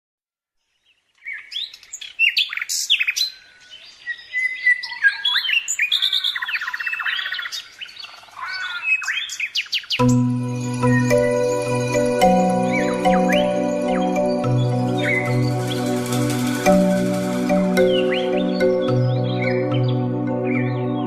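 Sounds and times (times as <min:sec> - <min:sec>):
birds chirping and singing: 0:01.2 - 0:21.0
music with sustained tones: 0:10.0 - 0:21.0.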